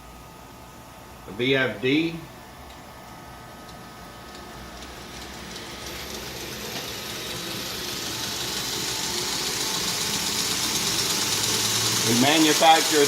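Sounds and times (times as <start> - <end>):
belt grinder hiss: 4.6 - 13.0.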